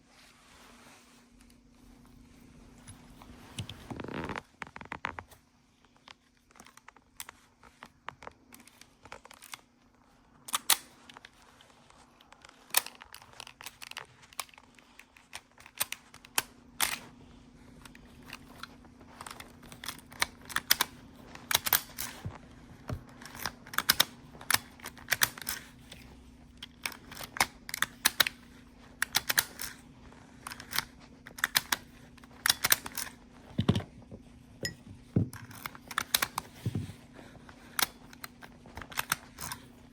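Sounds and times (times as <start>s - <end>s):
faint low hum: 0.0s - 39.9s.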